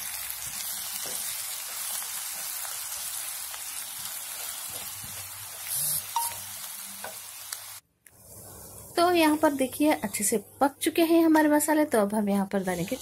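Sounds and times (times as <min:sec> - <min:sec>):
onions sizzling in hot oil: 0:00.0 - 0:10.3.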